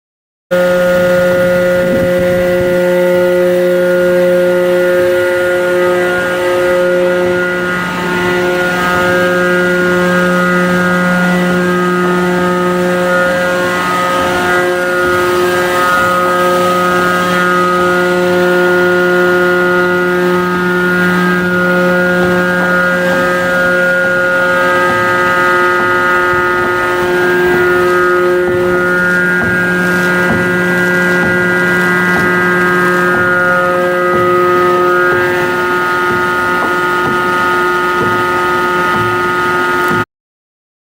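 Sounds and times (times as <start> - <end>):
machinery droning: 0.5 - 40.1.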